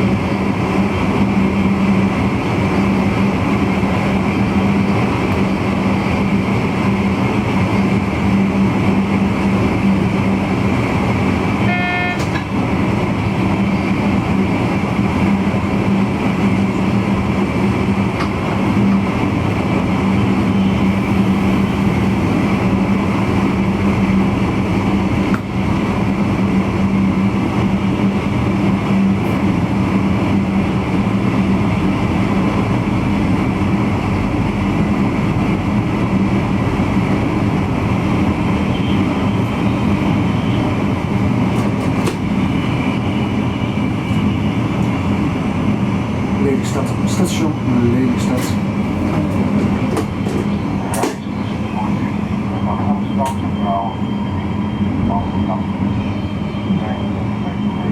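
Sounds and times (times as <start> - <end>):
train running with low hum: 0.0 - 57.9
brief horn-like tone: 11.6 - 12.4.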